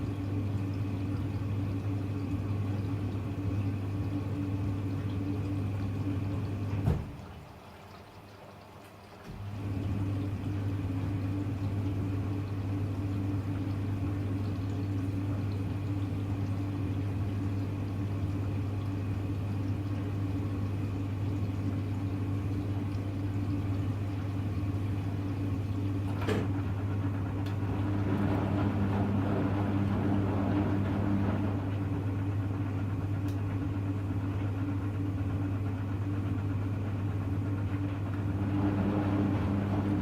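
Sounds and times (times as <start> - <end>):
drain pump humming: 0.0 - 40.0
washing machine click: 26.1 - 26.6.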